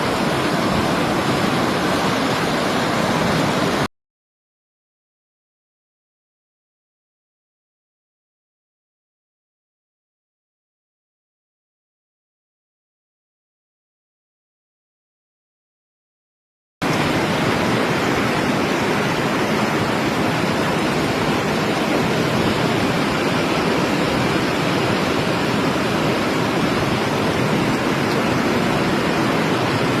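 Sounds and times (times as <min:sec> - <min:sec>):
fast-flowing water rushing: 0:00.0 - 0:03.9, 0:16.8 - 0:30.0.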